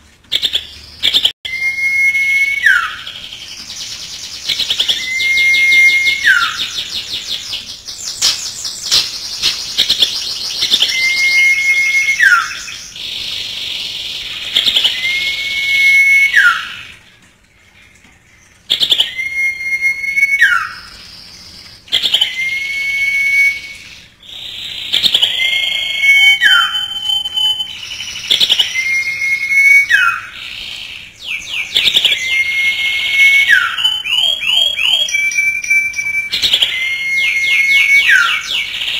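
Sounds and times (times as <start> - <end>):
high bird chirps and trills: 0.3 - 38.9
bird whistling with downward slur: 1.5 - 3.3, 4.5 - 7.0, 8.1 - 12.9, 14.6 - 16.9, 18.8 - 20.9, 21.9 - 24.1, 25.0 - 30.4, 31.2 - 38.7.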